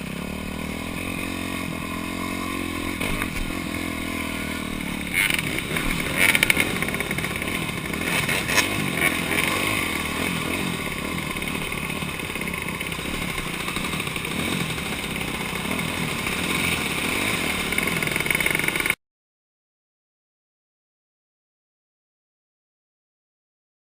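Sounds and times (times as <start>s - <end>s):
dirt bike engine revving: 0.0s - 19.0s
rattle: 4.8s - 16.5s.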